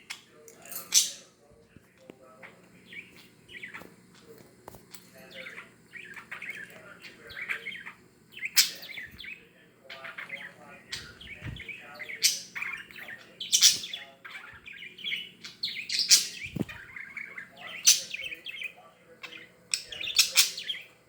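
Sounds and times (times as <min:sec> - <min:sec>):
budgerigar chattering and warbling: 0:05.4 - 0:20.8.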